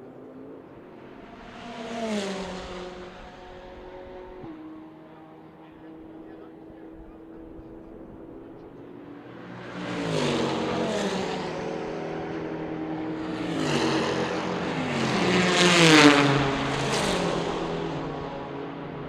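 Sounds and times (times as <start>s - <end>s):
race cars passing at high revs: 0.0s - 19.0s.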